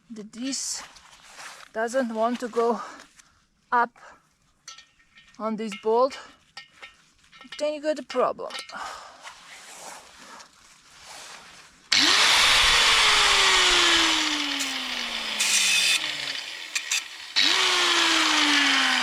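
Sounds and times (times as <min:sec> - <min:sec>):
power tool motor whine: 0:11.9 - 0:19.0.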